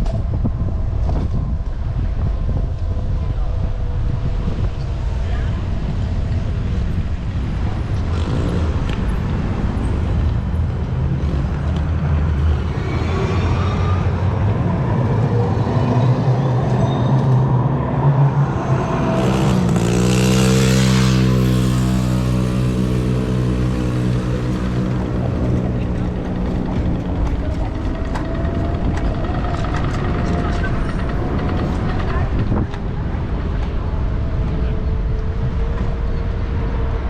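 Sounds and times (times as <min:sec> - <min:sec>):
city traffic: 0:00.0 - 0:37.0
vehicle engine idling: 0:22.3 - 0:32.5.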